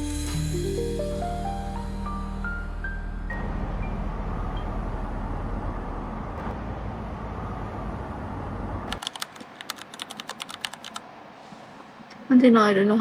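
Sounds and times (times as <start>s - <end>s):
moving vehicle rumble and hiss: 0.0s - 9.6s.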